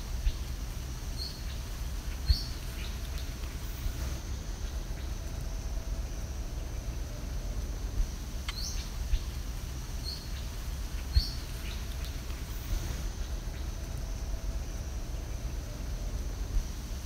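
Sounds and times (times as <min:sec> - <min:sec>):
faint high hiss: 0:00.0 - 0:17.0.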